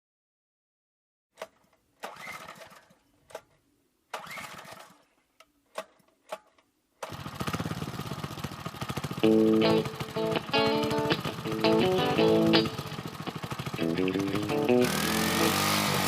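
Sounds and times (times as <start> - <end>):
recoil starter pulls whirring: 1.4 - 5.0, 7.0 - 16.0.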